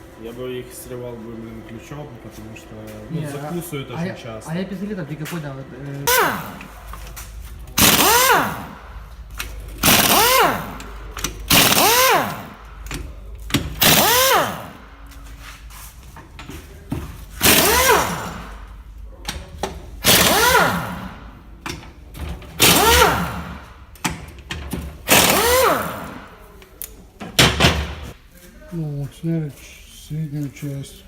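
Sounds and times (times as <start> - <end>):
pneumatic impact wrench rattling: 6.0 - 15.0, 17.2 - 18.8, 19.6 - 26.4.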